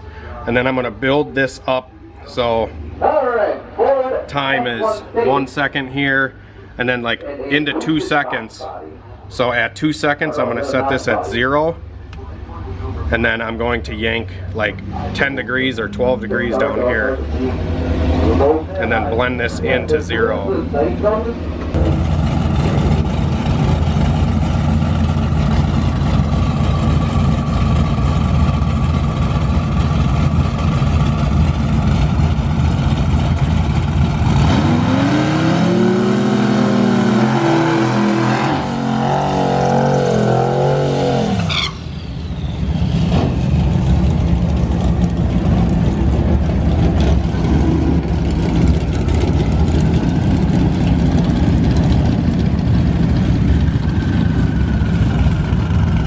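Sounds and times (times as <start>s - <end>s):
car engine revving: 21.7s - 41.8s.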